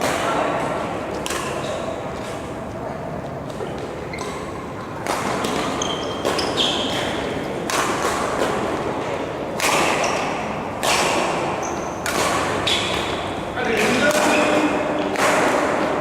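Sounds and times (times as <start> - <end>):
shoes squeaking on court floor: 3.3 - 7.6, 9.9 - 10.5, 11.4 - 15.2
badminton racket hitting shuttlecock: 5.0 - 9.0, 9.6 - 16.0.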